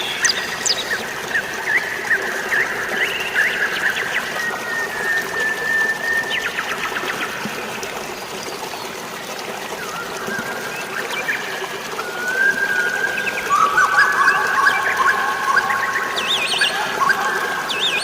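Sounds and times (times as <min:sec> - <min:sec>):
birds chirping: 0:00.0 - 0:05.1, 0:13.0 - 0:18.0
water flowing: 0:00.0 - 0:18.0.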